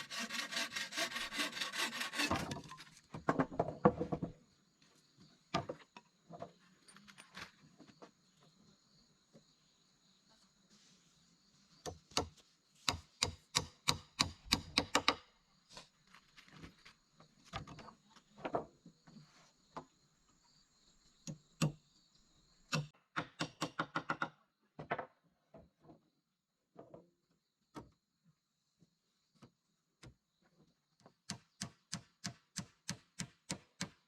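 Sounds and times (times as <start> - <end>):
hand tool striking wood: 0.0 - 3.0, 11.9 - 15.2.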